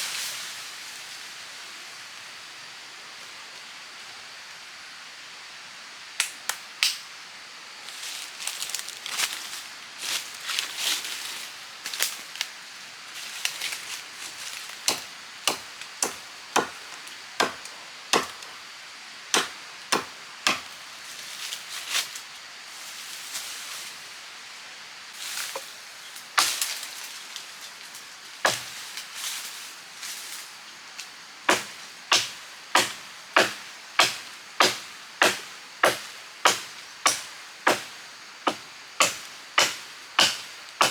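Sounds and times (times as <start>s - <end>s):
wood being chopped: 14.9s - 18.5s, 19.3s - 20.7s, 28.5s - 28.7s, 31.5s - 37.9s, 38.5s - 40.9s.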